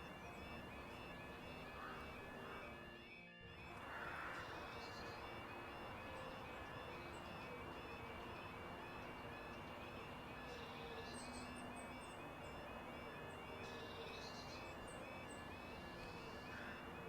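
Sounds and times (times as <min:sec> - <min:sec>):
faint outdoor background noise: 0:00.0 - 0:17.0
small birds chirping: 0:03.6 - 0:17.0.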